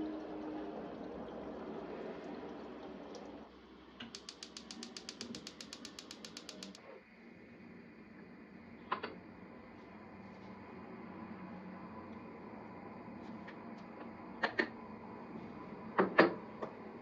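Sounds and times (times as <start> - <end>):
rapid mechanical clicking: 4.0 - 6.8
sharp click: 4.1 - 6.8.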